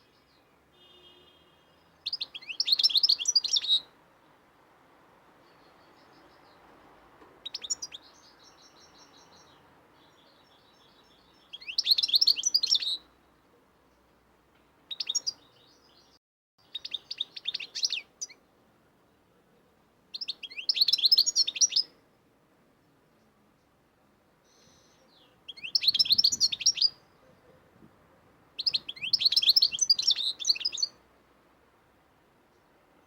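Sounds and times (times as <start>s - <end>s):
faint steady background noise: 0.0s - 33.0s
songbirds chirping and singing: 1.8s - 3.9s, 7.4s - 14.1s, 14.9s - 21.9s, 24.4s - 27.8s, 28.6s - 31.0s.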